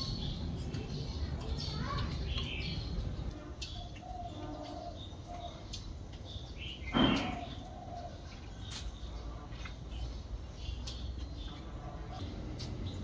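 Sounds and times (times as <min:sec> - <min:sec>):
outdoor background noise: 0:00.0 - 0:13.0
small birds chirping: 0:00.0 - 0:13.0.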